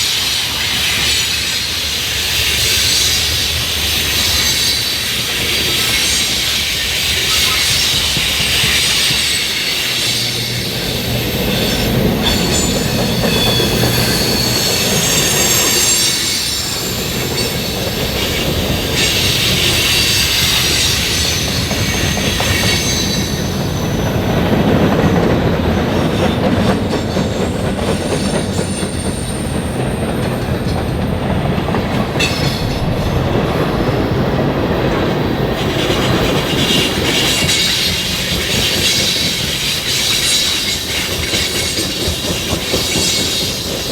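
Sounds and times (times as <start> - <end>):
train wheels rumbling on rail: 0.0 - 43.9
high-pitched wheel squeal: 4.1 - 24.0.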